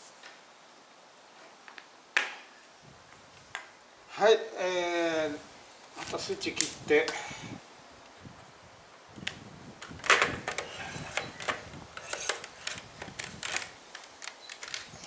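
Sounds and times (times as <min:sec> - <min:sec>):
hard objects clicking and knocking: 0:09.8 - 0:15.0.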